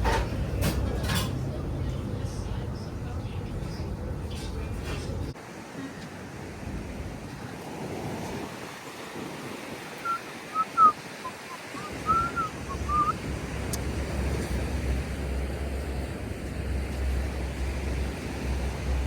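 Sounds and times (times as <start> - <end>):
waves washing ashore: 3.0 - 19.0
wind buffeting microphone: 6.2 - 19.0
short high chirps: 10.1 - 13.1.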